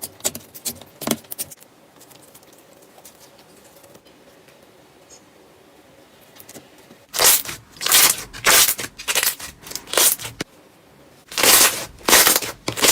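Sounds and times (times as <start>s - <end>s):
slime crackling squishes: 7.1s - 10.5s, 11.3s - 12.9s.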